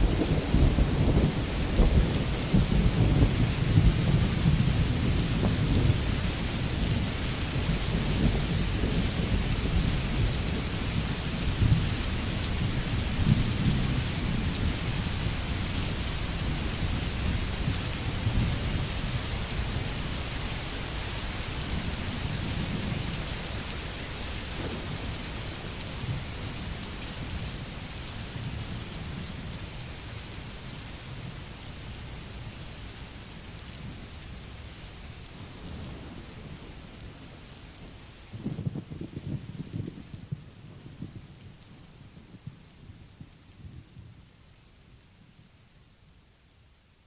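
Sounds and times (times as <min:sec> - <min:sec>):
distant thunder rumbling: 0:00.0 - 0:19.1, 0:21.8 - 0:27.3
steady rain: 0:00.0 - 0:47.0.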